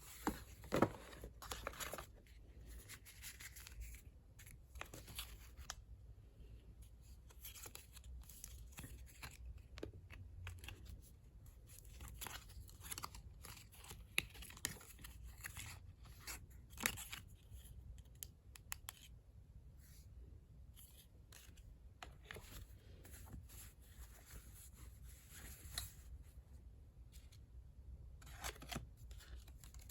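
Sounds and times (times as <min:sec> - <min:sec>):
paper rustling and crinkling: 0:00.0 - 0:05.8.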